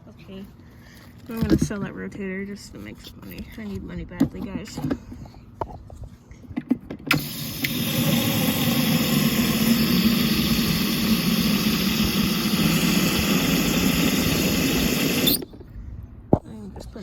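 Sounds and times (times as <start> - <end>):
carpet cleaner motor humming: 7.1 - 15.4.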